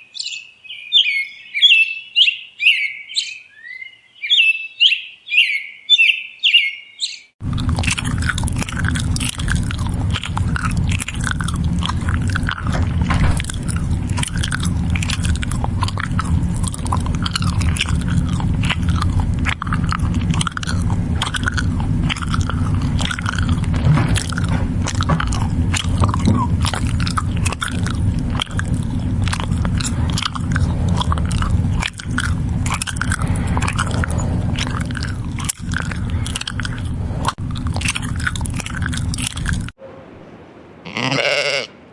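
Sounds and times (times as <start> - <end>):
birds chirping: 0.0 - 41.9
livestock chewing and crunching feed: 7.4 - 39.8
low rumble: 7.4 - 40.8.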